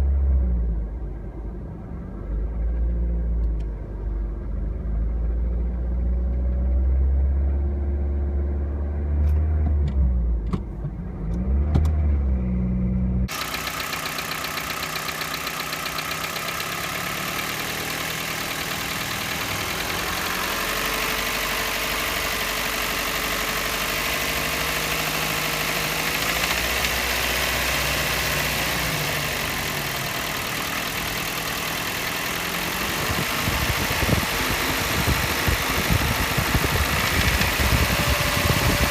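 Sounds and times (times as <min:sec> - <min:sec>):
car engine running: 0:12.9 - 0:38.9
metallic rattle inside engine: 0:13.3 - 0:38.9.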